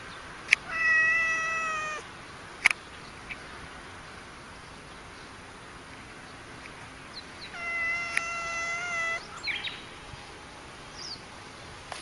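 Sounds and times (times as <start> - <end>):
cat chirping: 0.6 - 2.0, 7.4 - 9.7
cat yowling: 0.7 - 2.0, 7.5 - 9.3
sharp click: 2.6 - 2.8.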